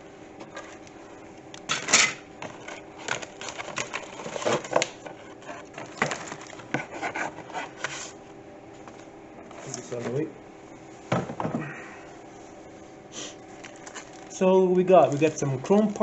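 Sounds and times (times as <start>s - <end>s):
faint steady hum: 0.0s - 16.0s
cardboard and plastic rustling: 2.4s - 8.2s, 13.4s - 16.0s.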